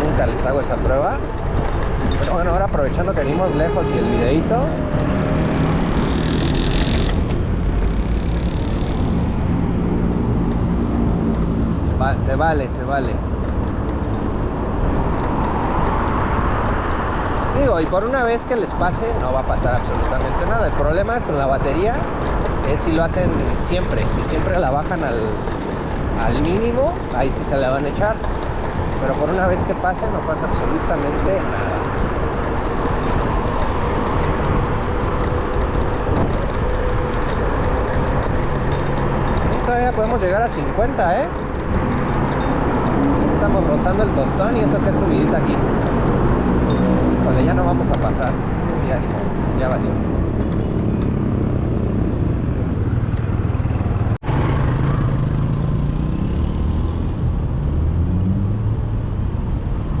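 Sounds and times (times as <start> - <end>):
city street traffic rumble: 0.0 - 60.0
road noise: 0.0 - 60.0.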